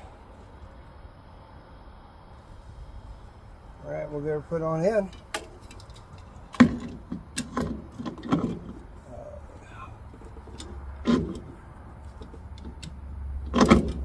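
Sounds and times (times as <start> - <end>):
metal clunks and knocks: 5.1 - 9.0, 10.1 - 14.0.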